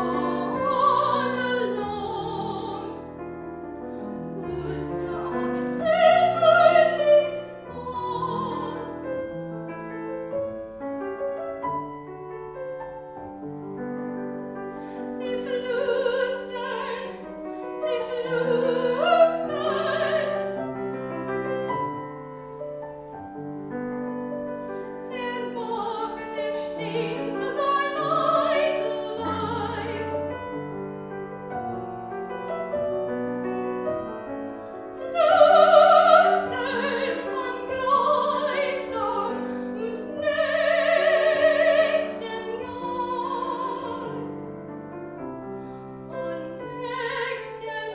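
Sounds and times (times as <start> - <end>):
operatic singing with vibrato: 0.0 - 3.2, 4.3 - 9.3, 15.1 - 20.7, 25.0 - 30.6, 34.8 - 44.4, 46.0 - 47.9
piano accompaniment: 0.0 - 47.9.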